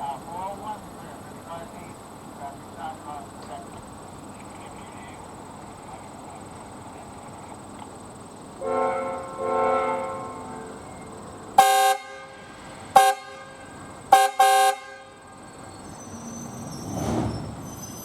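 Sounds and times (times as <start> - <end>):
train horn: 8.6 - 15.5
harsh horn blasts: 8.6 - 16.3.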